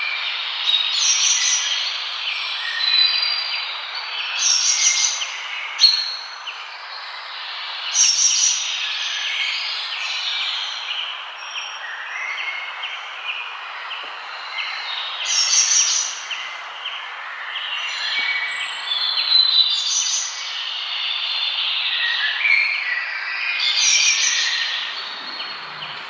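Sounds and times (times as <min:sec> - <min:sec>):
birds singing and chirping: 0:00.0 - 0:26.0
background hiss: 0:23.6 - 0:26.0.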